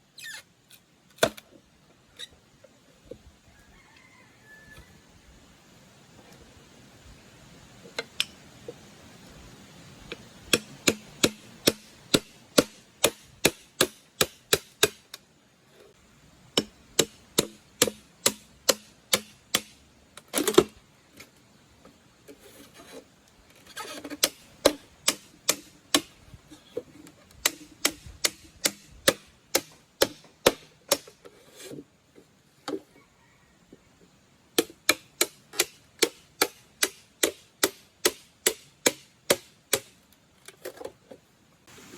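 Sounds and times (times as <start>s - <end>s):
rapid chopping strikes: 10.5s - 15.0s, 16.6s - 19.8s, 24.2s - 26.1s, 27.4s - 31.1s.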